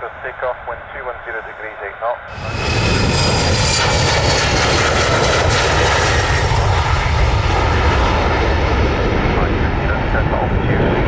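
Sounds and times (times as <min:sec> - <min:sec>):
jet airliner engines rumbling: 0:00.0 - 0:11.0.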